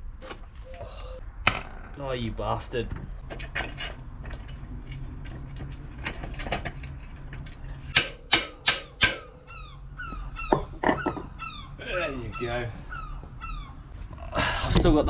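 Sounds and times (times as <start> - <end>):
metal parts and tools clinking: 2.9 - 9.3
sharp knocks: 8.0 - 9.3.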